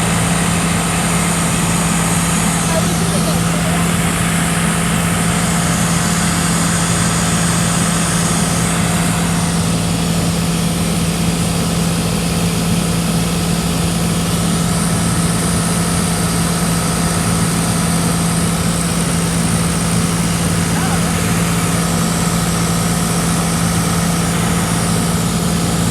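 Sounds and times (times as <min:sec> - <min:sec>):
propeller plane engine droning: 0:00.0 - 0:25.9
airflow noise: 0:18.4 - 0:25.9.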